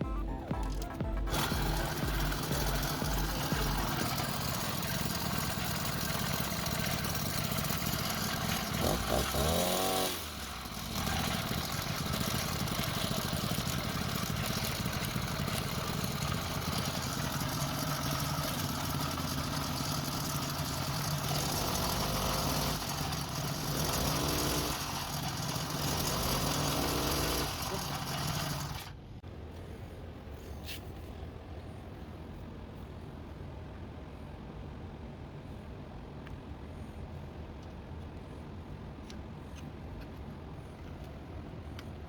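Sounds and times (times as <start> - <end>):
motorized bicycle engine running: 0.0 - 29.0.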